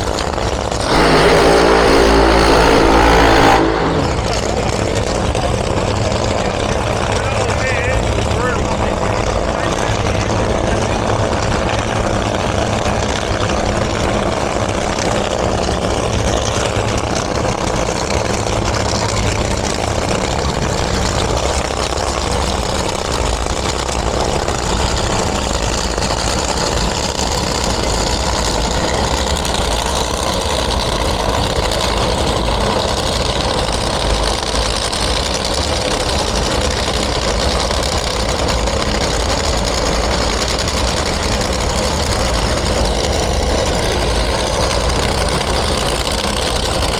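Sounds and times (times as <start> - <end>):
vehicle engines idling: 0.0 - 46.9.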